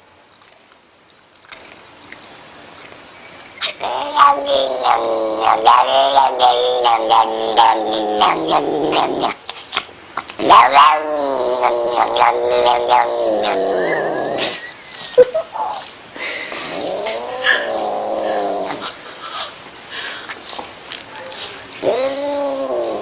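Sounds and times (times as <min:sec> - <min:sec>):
cat caterwauling: 0:03.6 - 0:09.4, 0:10.4 - 0:14.6, 0:16.8 - 0:18.8, 0:21.8 - 0:23.0.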